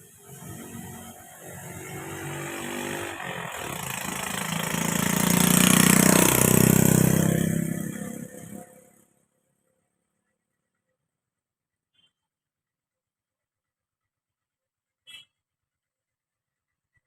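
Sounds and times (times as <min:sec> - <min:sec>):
vehicle engine passing: 0:00.0 - 0:09.2.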